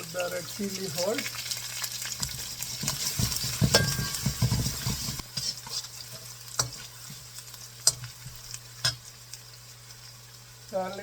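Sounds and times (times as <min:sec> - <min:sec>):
garlic sizzling in hot oil: 0:00.0 - 0:11.0
utensil scraping a pan: 0:02.1 - 0:07.2.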